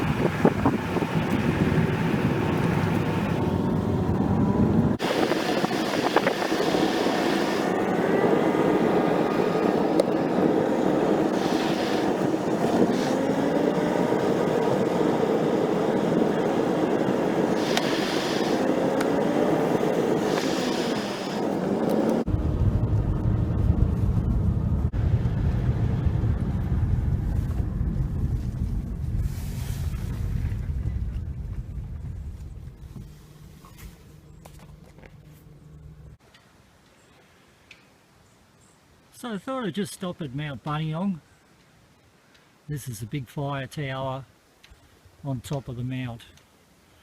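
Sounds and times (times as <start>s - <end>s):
vehicle noise with wavering pitch: 0.0s - 36.2s.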